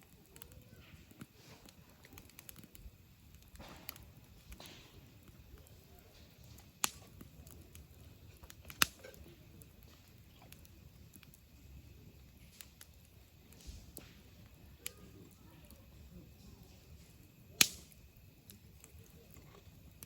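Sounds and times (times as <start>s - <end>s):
campfire crackling: 0.0s - 20.0s
sharp fire pops: 0.1s - 20.0s.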